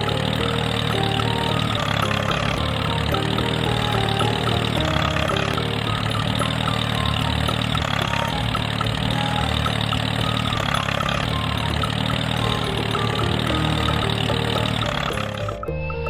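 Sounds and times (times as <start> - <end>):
small engine running: 0.0 - 15.6.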